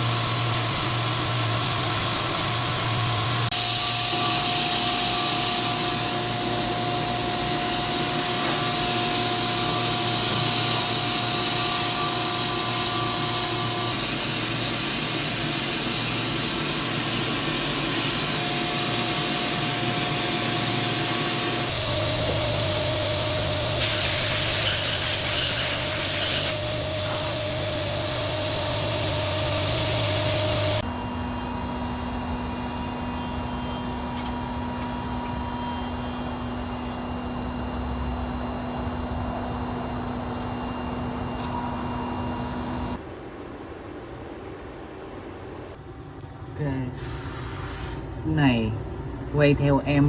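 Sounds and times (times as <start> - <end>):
lathe cutting with hiss and whine: 0.0 - 43.0, 46.6 - 50.0
low machine hum: 0.0 - 47.4.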